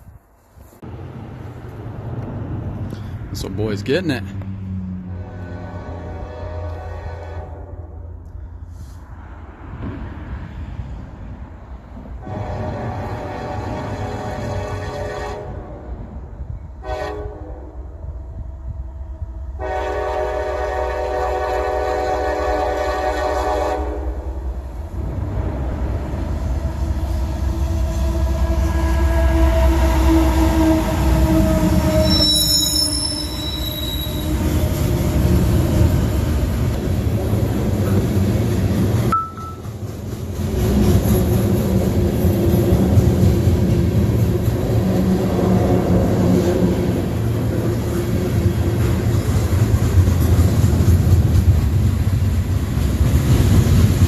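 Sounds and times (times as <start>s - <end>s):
freight train rumbling past: 0.0s - 54.0s
train wheel squeal: 27.6s - 35.2s.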